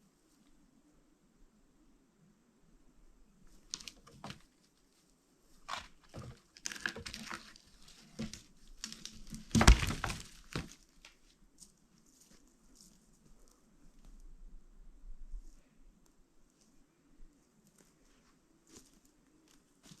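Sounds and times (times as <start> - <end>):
crackles and snaps: 3.5 - 4.8, 5.6 - 14.2.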